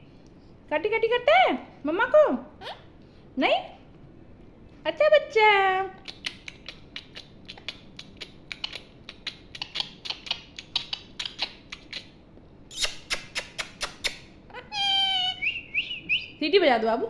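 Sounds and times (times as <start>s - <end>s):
parrot beak clicks: 6.0s - 14.3s.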